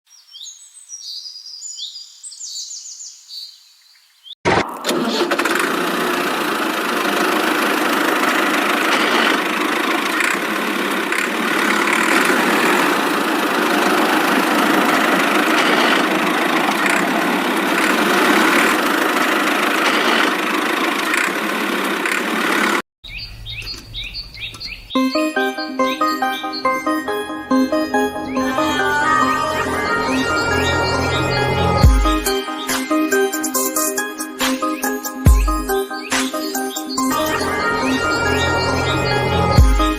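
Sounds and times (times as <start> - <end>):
bird chirps: 0.1 - 4.4, 23.0 - 29.1, 30.6 - 37.4
small motor running: 4.9 - 22.8.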